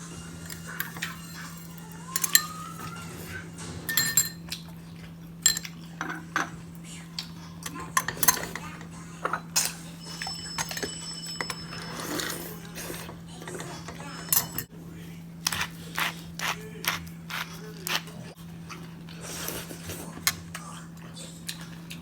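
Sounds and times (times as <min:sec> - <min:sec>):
spoons clinking against bowls: 0:00.4 - 0:14.7.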